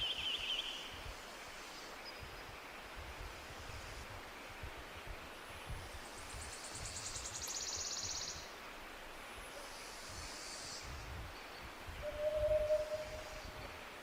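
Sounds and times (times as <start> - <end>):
songbirds singing: 0.0 - 3.0, 4.3 - 8.8.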